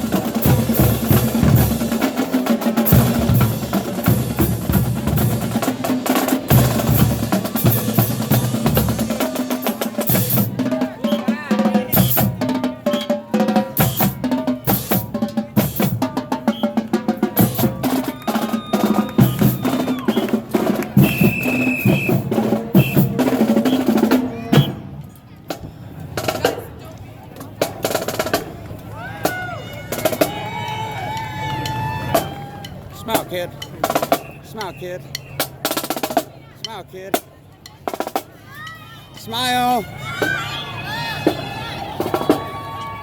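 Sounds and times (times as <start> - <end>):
marching band playing: 0.0 - 25.0, 25.9 - 26.8, 27.4 - 43.0
snare drum strokes: 0.0 - 25.0, 31.6 - 39.8.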